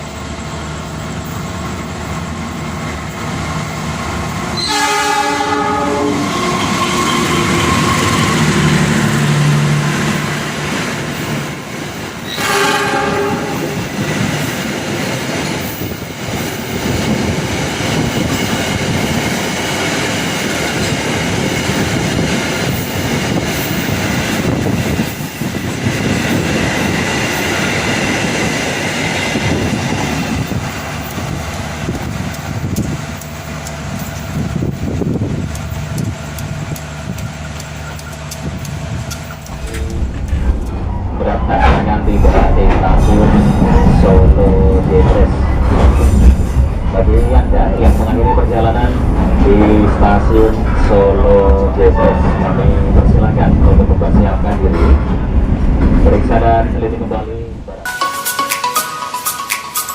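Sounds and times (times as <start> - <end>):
train wheels rumbling on rails: 0.0 - 57.8
train horn blasts: 4.6 - 8.8, 12.2 - 13.8.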